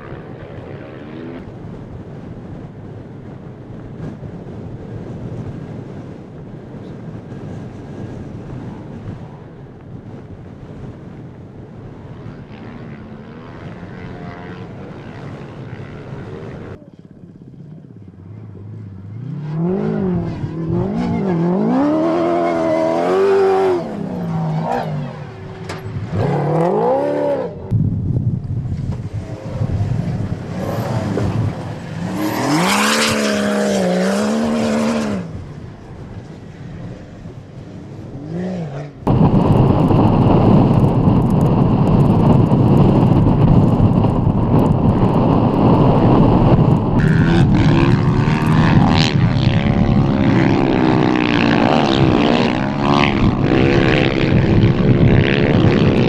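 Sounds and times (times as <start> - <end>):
wind noise on microphone: 0.0 - 56.0
car engine revving: 18.5 - 27.7, 29.1 - 35.5, 46.6 - 56.0.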